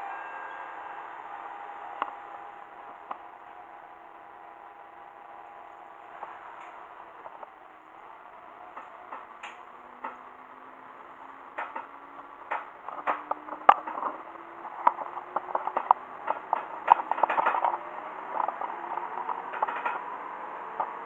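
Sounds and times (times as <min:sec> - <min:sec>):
diesel railcar engine accelerating: 0:00.0 - 0:21.0
clicking and rattling: 0:11.5 - 0:20.1.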